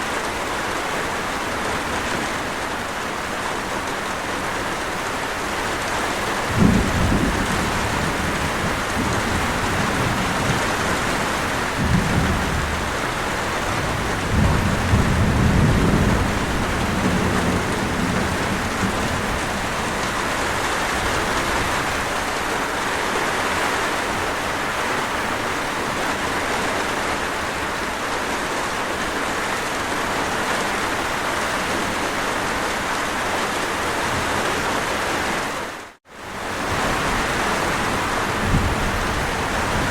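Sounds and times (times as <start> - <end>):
heavy rain falling: 0.0 - 39.9
thunder rolling: 6.5 - 22.2, 36.5 - 39.9.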